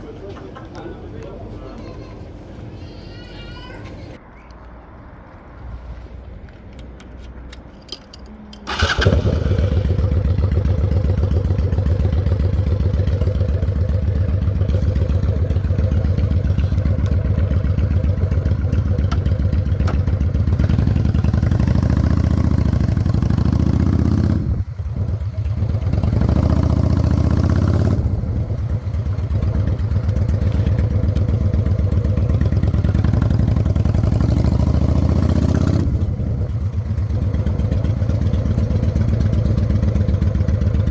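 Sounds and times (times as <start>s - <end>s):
starter clicking: 6.8s - 9.6s
motorcycle engine running: 8.7s - 40.9s.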